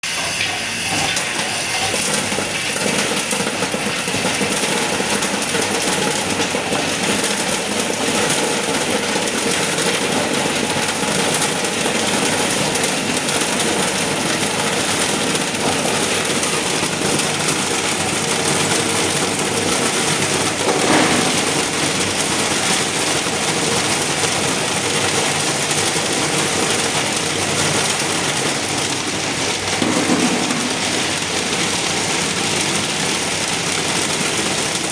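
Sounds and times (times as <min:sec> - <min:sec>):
refrigeration machine running: 0:00.0 - 0:34.9.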